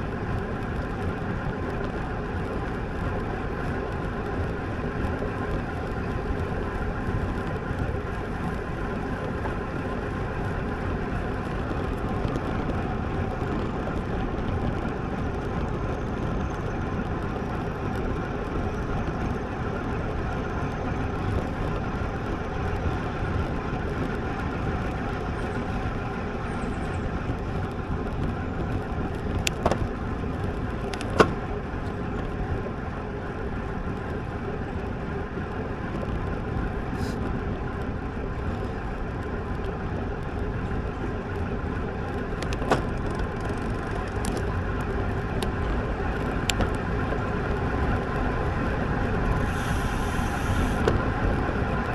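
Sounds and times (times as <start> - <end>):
wind and road noise: 0.0 - 51.9.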